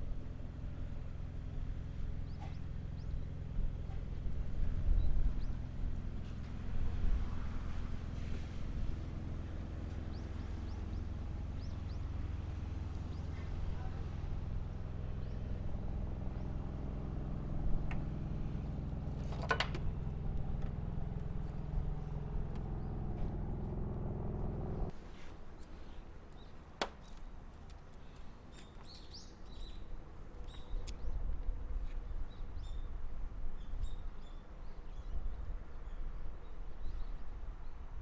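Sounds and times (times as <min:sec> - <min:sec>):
motor humming: 0:00.7 - 0:24.9
sharp clicks and knocks: 0:18.8 - 0:24.9.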